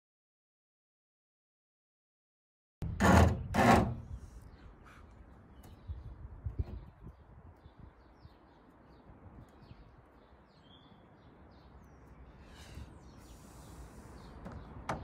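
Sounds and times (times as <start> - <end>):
birds chirping: 4.1 - 15.0.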